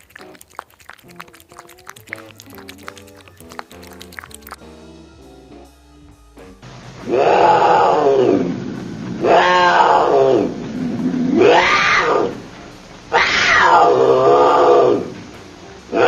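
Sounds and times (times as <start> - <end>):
animal calling: 0.0 - 4.6, 7.0 - 8.5, 9.2 - 12.5, 13.1 - 15.2.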